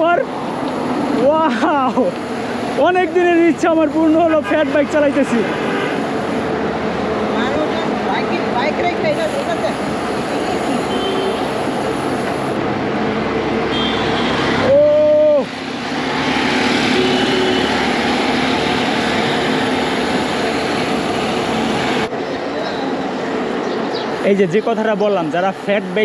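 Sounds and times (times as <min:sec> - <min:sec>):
horn beep: 0:13.7 - 0:14.6, 0:16.9 - 0:18.0.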